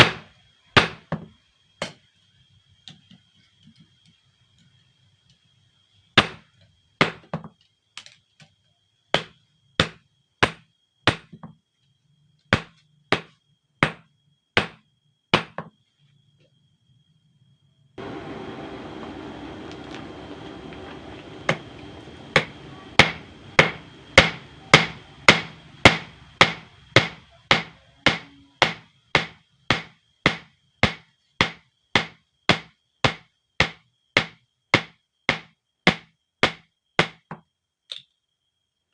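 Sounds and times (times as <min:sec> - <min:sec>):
steady rushing noise: 0:18.0 - 0:26.8.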